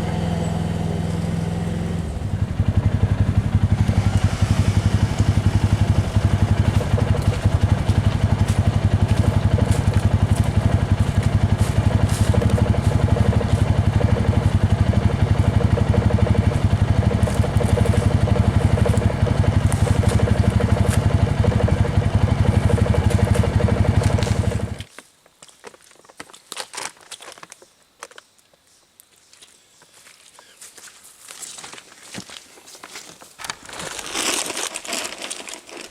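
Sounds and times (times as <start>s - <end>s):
small engine running: 0.0s - 24.9s.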